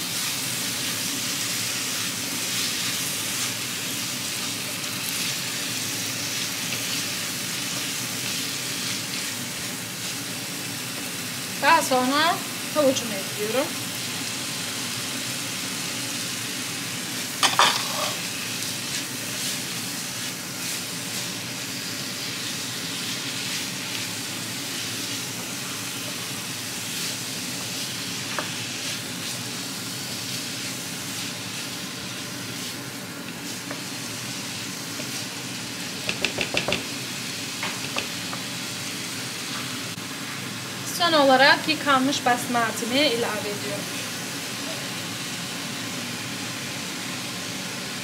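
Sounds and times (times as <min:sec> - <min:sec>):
food sizzling in oil: 0:00.0 - 0:48.0
spoon stirring in pan: 0:17.4 - 0:18.2.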